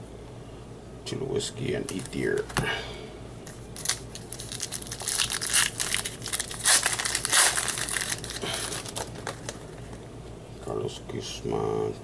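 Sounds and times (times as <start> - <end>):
plastic wrapper tearing and crinkling: 3.7 - 10.0.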